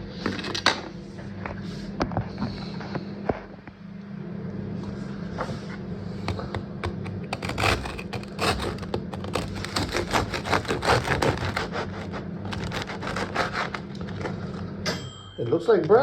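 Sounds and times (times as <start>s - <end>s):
steady low hum: 0.0s - 15.2s
knife sawing through bread crust: 6.3s - 14.3s.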